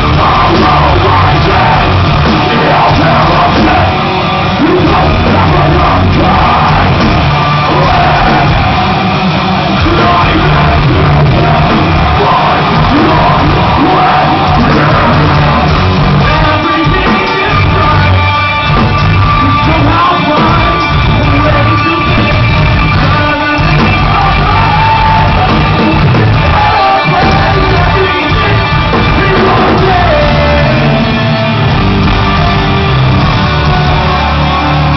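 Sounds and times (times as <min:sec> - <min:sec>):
live rock band playing: 0:00.0 - 0:34.9
vocals: 0:00.0 - 0:34.9.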